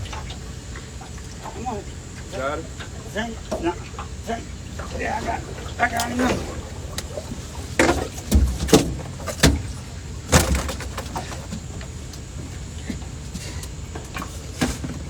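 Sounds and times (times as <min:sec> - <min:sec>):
thumps and knocks in boat: 0:04.8 - 0:15.0.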